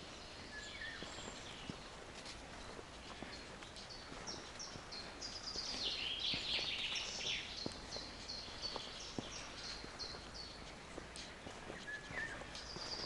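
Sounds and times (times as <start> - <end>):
songbirds singing: 0.0 - 13.0
steady outdoor hiss: 0.0 - 13.0
faint clicks: 11.0 - 11.8.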